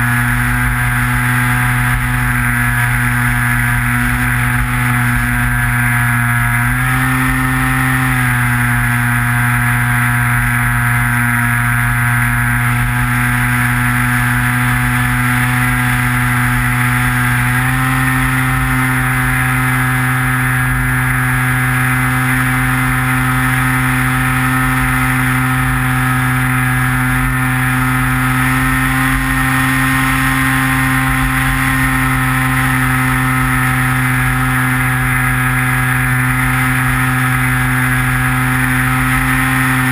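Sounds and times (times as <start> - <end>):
model plane propeller droning: 0.0 - 39.9.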